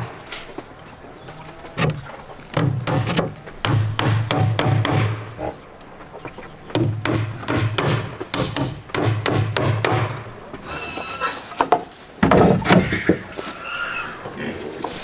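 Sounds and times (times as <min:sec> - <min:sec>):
strikes on wood: 0:01.8 - 0:05.4, 0:06.7 - 0:10.3.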